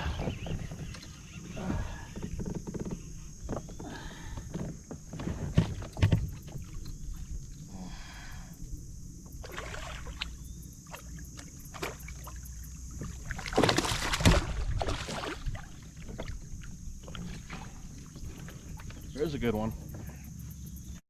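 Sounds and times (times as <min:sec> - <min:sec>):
water splashing: 0:09.4 - 0:19.7.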